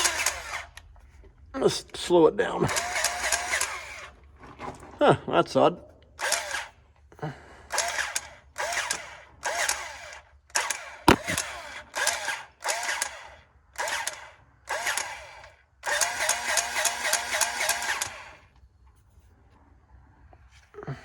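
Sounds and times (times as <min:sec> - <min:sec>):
grease gun motor whirring: 0:00.0 - 0:00.8, 0:02.7 - 0:04.1, 0:07.8 - 0:13.1, 0:15.8 - 0:18.4.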